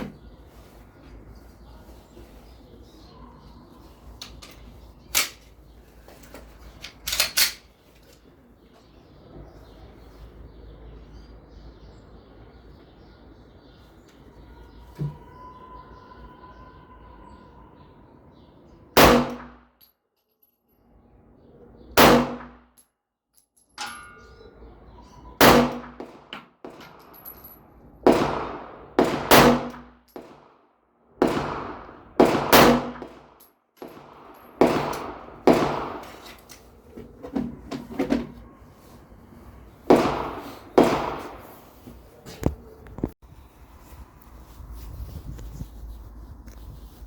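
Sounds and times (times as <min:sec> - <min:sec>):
pistol shots: 0:19.0 - 0:19.6, 0:22.0 - 0:22.6, 0:25.4 - 0:27.1, 0:28.0 - 0:30.5, 0:31.2 - 0:36.2, 0:39.9 - 0:41.5.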